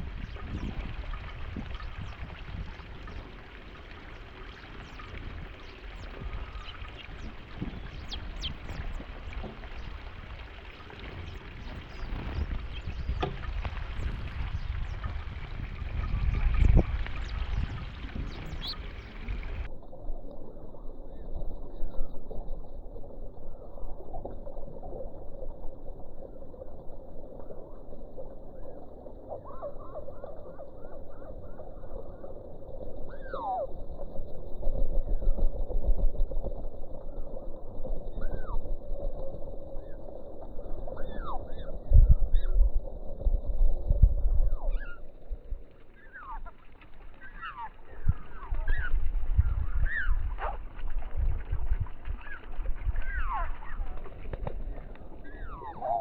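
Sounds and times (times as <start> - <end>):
small birds chirping: 0.0 - 19.7, 45.8 - 50.6, 52.1 - 56.0
steady low rumble: 0.0 - 33.0, 33.8 - 56.0
low thumps and rumble: 4.7 - 19.7.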